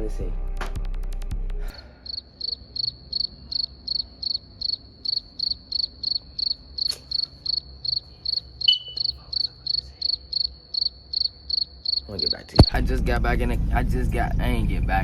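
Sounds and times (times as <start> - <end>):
cricket chirping: 1.8 - 12.7.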